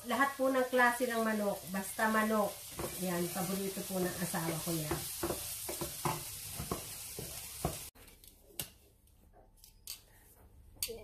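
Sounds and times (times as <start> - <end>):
chicken wings sizzling in a pan: 0.0 - 8.0
spatula scraping against pan: 2.5 - 7.9.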